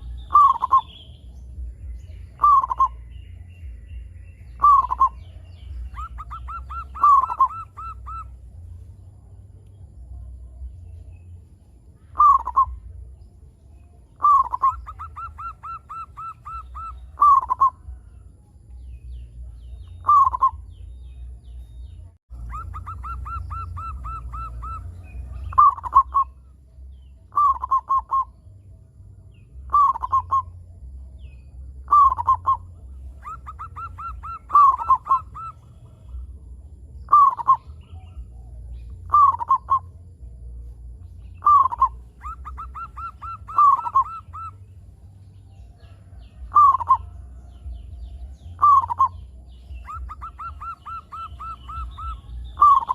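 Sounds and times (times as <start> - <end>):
dove cooing: 0.0 - 1.0, 2.3 - 3.0, 4.6 - 8.4, 12.1 - 12.9, 14.2 - 18.0, 20.0 - 20.7, 22.4 - 26.4, 27.3 - 28.3, 29.7 - 30.6, 31.8 - 36.4, 37.1 - 40.0, 41.4 - 44.7, 45.7 - 52.9
steady low hum: 0.0 - 52.9.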